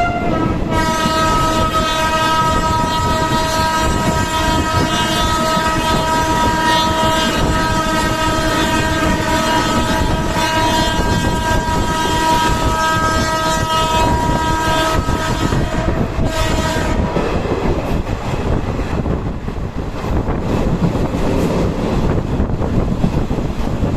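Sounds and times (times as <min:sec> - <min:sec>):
train rumbling: 0:00.0 - 0:23.9.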